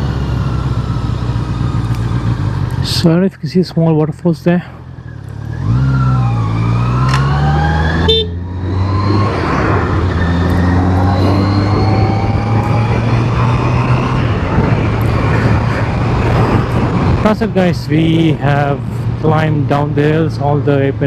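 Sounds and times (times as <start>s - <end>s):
motorcycle engine accelerating: 0.0s - 3.3s, 4.8s - 20.7s
wind rushing: 8.6s - 18.3s.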